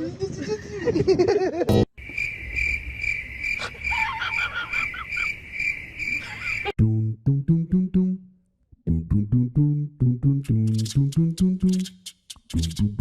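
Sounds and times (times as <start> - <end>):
cricket chirping: 1.9 - 6.8.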